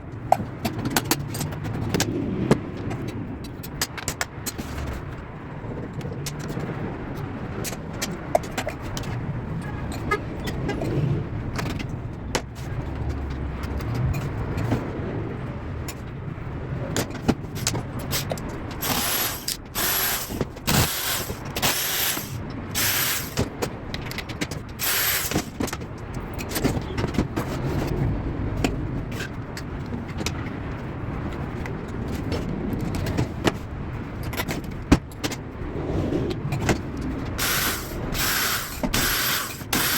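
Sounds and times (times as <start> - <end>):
short loud hissing bursts: 18.8 - 23.4, 24.8 - 25.5, 37.4 - 39.9
low rumble: 35.4 - 38.2.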